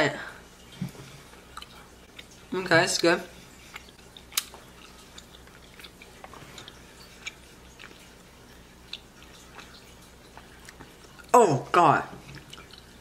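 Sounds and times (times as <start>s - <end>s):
low steady hum: 0.0s - 13.0s
wet mouth clicks and smacks: 3.7s - 8.0s.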